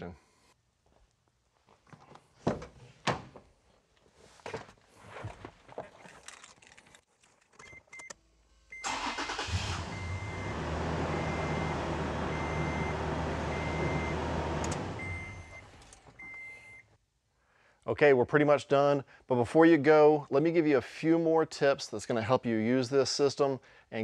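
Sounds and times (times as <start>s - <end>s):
car engine starting and running: 8.7s - 16.2s.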